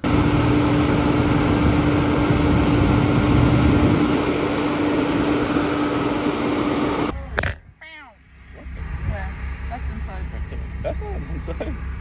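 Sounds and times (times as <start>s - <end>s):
farm machinery engine running: 0.0s - 7.2s.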